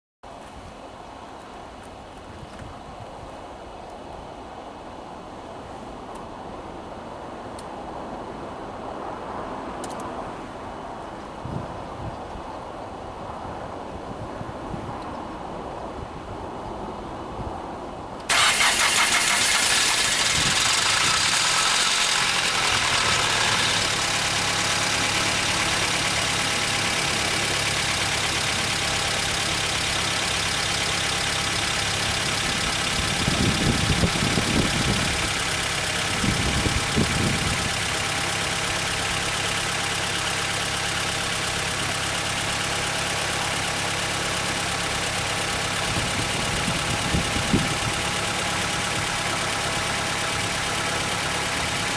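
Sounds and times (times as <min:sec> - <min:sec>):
car engine starting and idling: 0:18.2 - 0:51.9
engine revving surges: 0:18.3 - 0:30.2.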